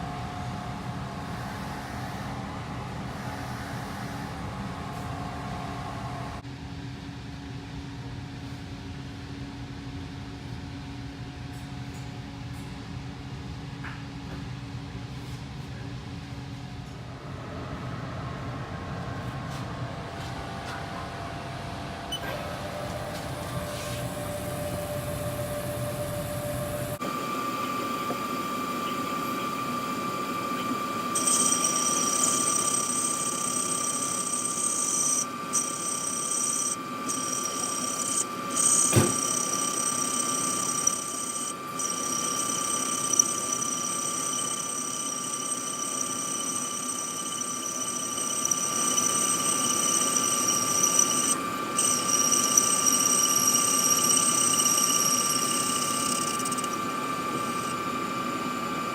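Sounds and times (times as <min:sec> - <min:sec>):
high-pitched whine: 0:23.0 - 0:58.9
metal lathe running: 0:23.7 - 0:58.9.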